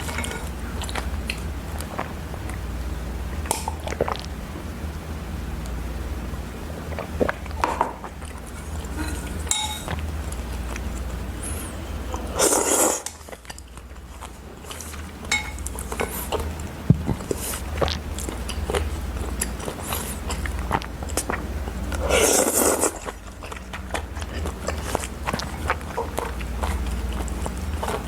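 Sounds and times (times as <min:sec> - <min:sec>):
utensils clinking against dishes: 0:00.0 - 0:01.0, 0:08.5 - 0:10.0, 0:14.7 - 0:16.5
low steady hum: 0:00.0 - 0:28.0.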